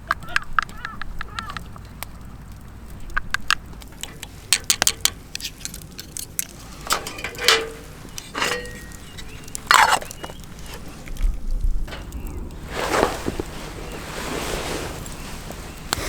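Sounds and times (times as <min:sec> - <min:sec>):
small hard objects clinking: 0:00.1 - 0:14.1
brushing rustles: 0:03.9 - 0:16.0.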